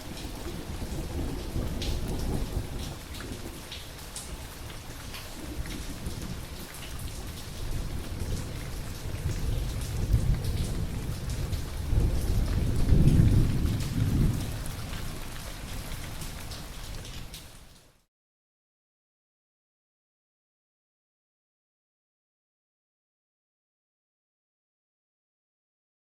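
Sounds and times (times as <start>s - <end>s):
thunder rumble: 0.0s - 3.8s, 5.4s - 15.3s
steady rain: 0.0s - 18.1s.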